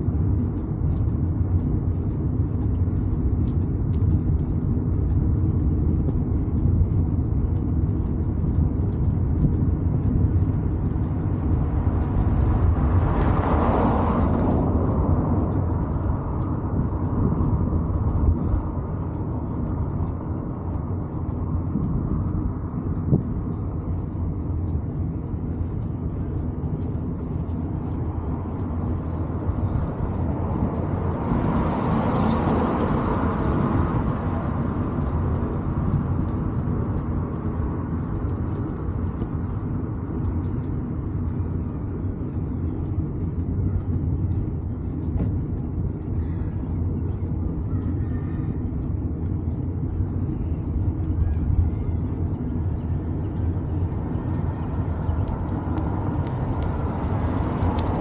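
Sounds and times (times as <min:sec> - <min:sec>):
wind and road noise: 0:00.0 - 0:58.0
vehicle passing: 0:10.0 - 0:40.1, 0:51.5 - 0:58.0.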